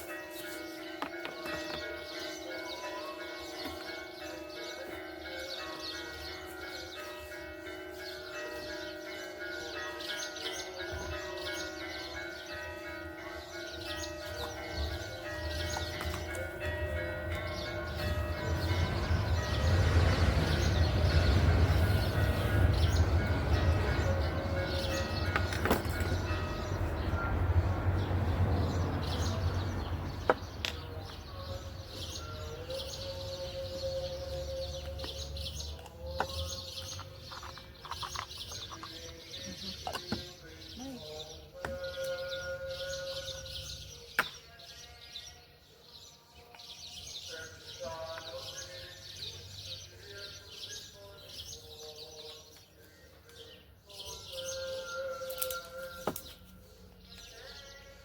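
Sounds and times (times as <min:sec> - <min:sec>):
birds chirping: 0:00.1 - 0:58.0
low rumble: 0:17.2 - 0:31.9.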